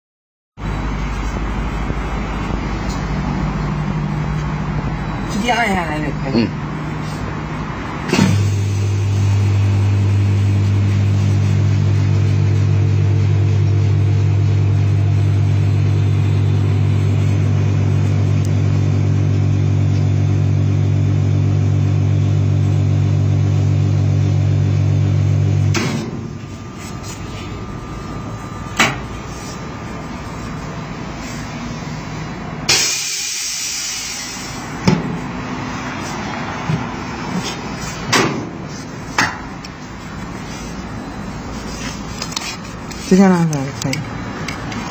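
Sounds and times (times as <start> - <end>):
vacuum pump humming: 0.6 - 32.7
air hissing into chamber: 32.7 - 34.6.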